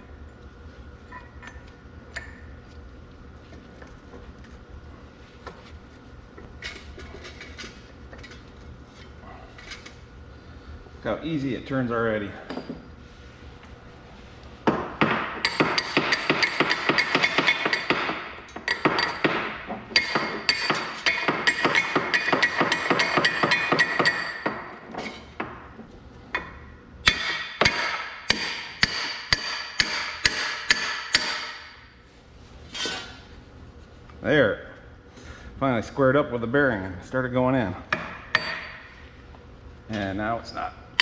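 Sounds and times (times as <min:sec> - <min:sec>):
hammer striking steel: 0:14.7 - 0:24.7, 0:27.0 - 0:31.8.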